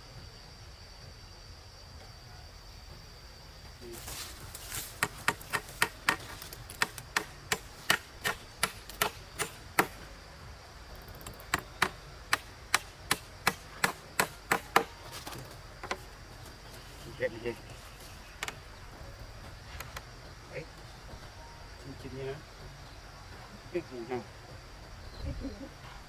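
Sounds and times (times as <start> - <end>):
hand tool striking wood: 3.9 - 10.2, 11.1 - 18.7.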